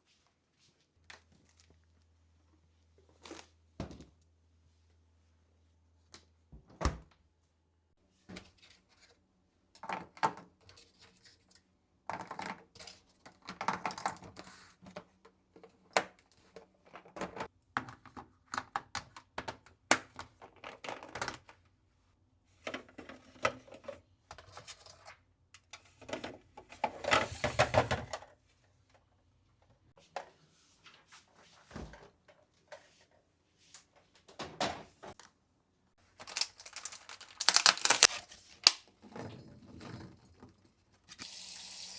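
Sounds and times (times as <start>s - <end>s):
clicks and knocks of containers: 12.1s - 21.6s
packaging rustling: 36.1s - 38.8s.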